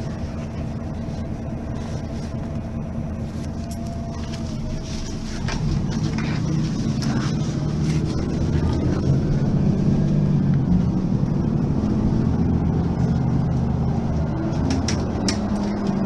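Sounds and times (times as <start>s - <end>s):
bus diesel engine running: 0.0s - 16.0s.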